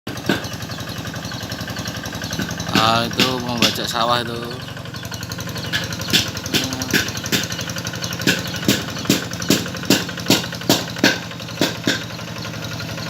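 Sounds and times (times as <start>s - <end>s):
tractor engine running: 0.1s - 13.0s
sharp metallic knock: 2.4s - 4.0s, 5.6s - 12.2s.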